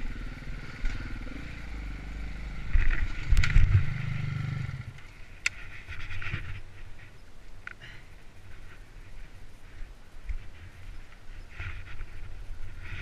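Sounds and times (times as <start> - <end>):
dirt bike engine under throttle: 0.0 - 5.1.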